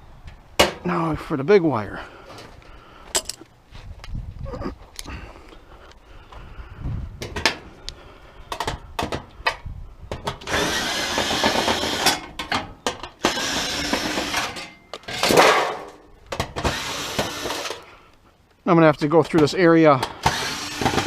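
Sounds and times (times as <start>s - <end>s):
handheld power tool running: 10.4s - 12.3s, 13.2s - 14.6s, 16.6s - 17.8s, 20.2s - 21.0s.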